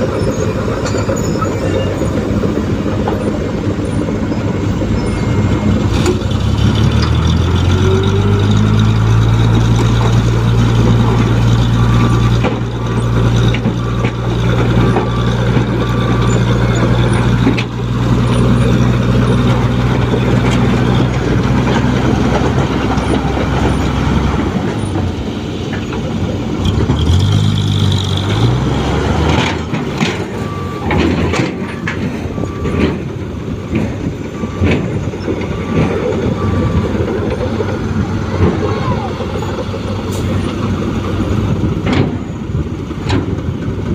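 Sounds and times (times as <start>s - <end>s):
truck engine droning: 0.0s - 43.9s
reversing beeps: 0.8s - 2.4s, 3.2s - 6.3s, 30.1s - 33.2s, 34.0s - 39.6s.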